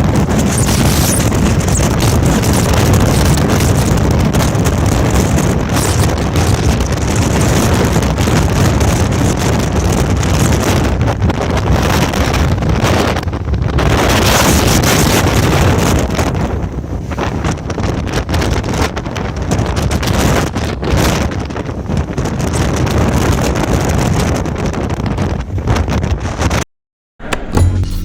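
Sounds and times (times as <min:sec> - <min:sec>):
strong wind buffeting microphone: 0:00.0 - 0:26.6.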